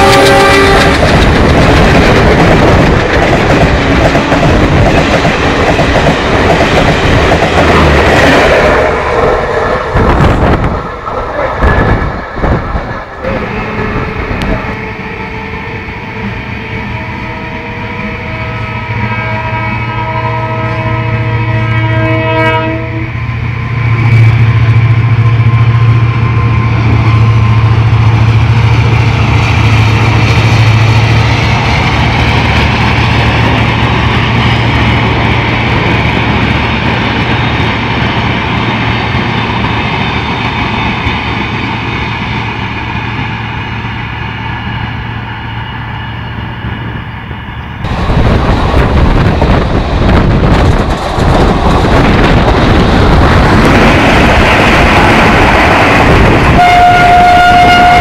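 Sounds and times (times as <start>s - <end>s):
train horn: 0.0s - 1.1s, 13.2s - 26.7s, 56.4s - 58.0s
wind buffeting: 0.0s - 16.6s, 46.6s - 58.0s
rail noise: 0.0s - 58.0s
train rumble with low hum: 0.0s - 58.0s.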